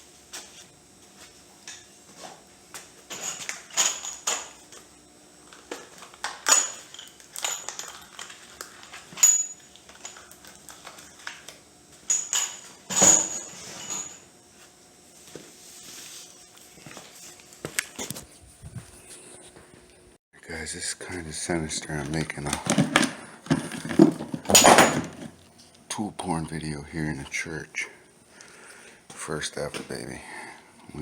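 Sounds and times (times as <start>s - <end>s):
metal objects clinking: 3.1s - 4.6s, 6.3s - 10.4s, 12.1s - 14.2s, 22.6s - 25.3s.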